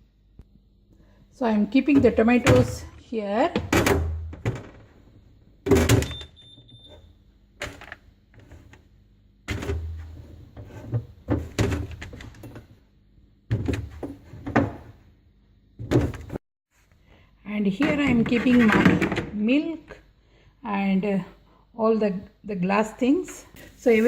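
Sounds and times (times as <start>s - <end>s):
faint steady hum: 0.0s - 18.3s, 19.2s - 24.0s
containers set down on shelves: 9.5s - 12.8s, 13.5s - 15.0s, 15.8s - 16.4s.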